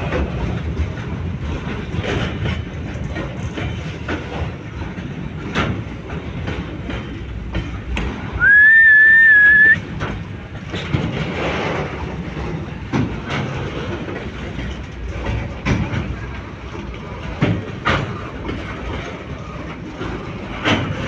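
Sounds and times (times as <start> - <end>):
train wheels clattering over rail joints: 0.0 - 21.0
shrill whistle: 8.4 - 9.8.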